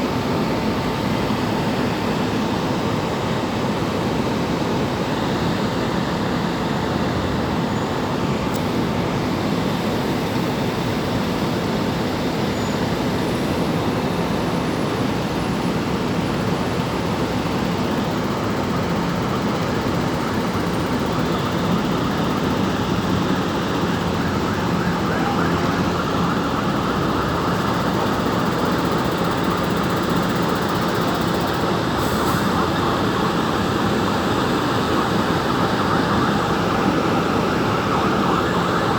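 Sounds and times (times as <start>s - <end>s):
road traffic passing: 17.2s - 38.9s.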